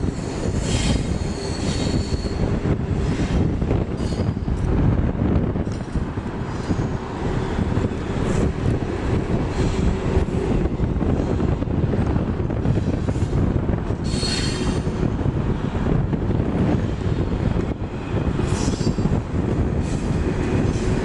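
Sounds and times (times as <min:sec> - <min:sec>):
high-pitched wheel squeals: 0:00.0 - 0:02.5, 0:03.9 - 0:04.6, 0:14.0 - 0:14.9, 0:18.4 - 0:19.2
train wheels rumbling on rail: 0:00.0 - 0:21.0.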